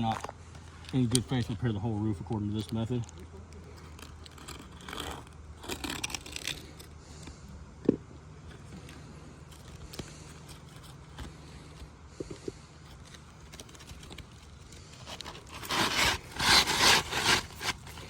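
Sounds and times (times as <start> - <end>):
shingle scraping on roof: 8.6 - 18.0.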